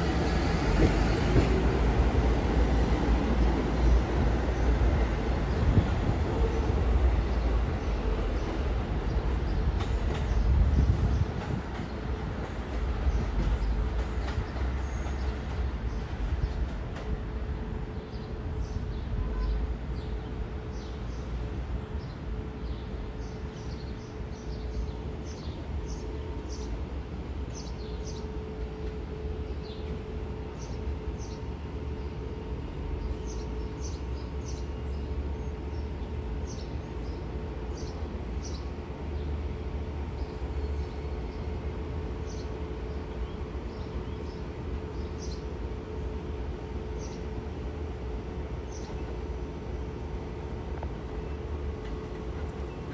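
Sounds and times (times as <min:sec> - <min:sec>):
train humming and rumbling: 0:00.0 - 0:52.9
small birds chirping: 0:33.2 - 0:38.7, 0:40.2 - 0:52.9.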